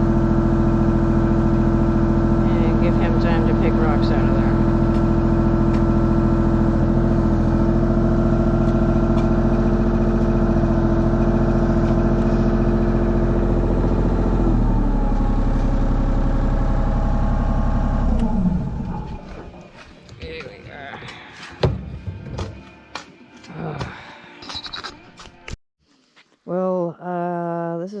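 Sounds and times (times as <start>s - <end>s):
excavator diesel engine running: 0.0s - 20.1s.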